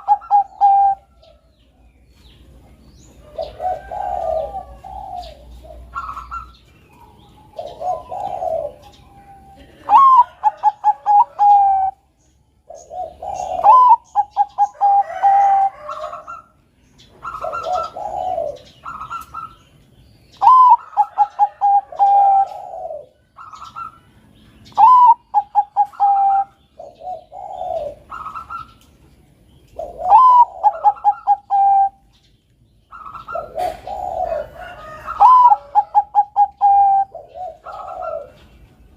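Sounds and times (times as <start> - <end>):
dove cooing: 0.0 - 1.4, 2.5 - 19.7, 20.3 - 28.9, 29.7 - 32.2, 32.9 - 38.9.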